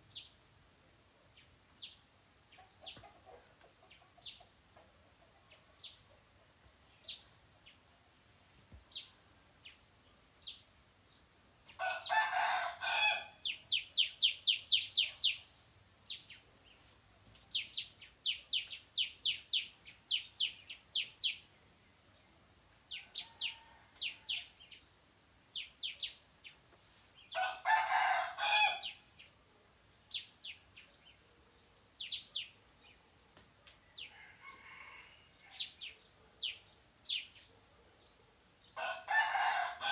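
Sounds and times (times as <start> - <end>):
songbird chirping: 0.0 - 39.9
rooster crowing: 11.8 - 13.4, 27.3 - 29.0, 34.0 - 35.7, 38.8 - 39.9.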